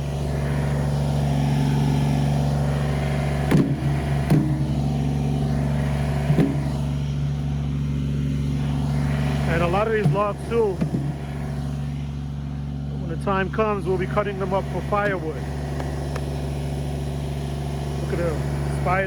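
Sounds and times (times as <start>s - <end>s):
diesel tractor engine running: 0.0s - 19.0s
sharp knocks: 3.5s - 4.8s, 6.3s - 6.8s, 10.0s - 11.2s.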